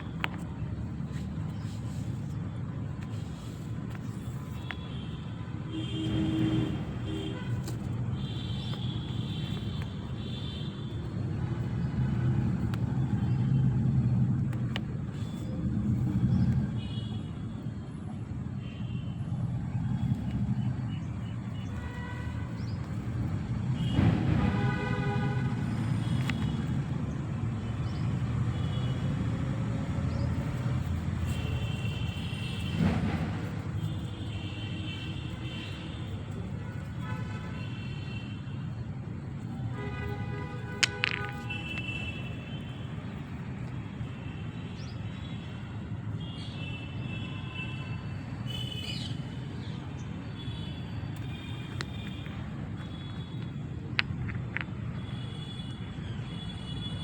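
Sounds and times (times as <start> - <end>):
rumble of passing vehicles: 0.0 - 57.0
car horn toots: 23.8 - 26.2.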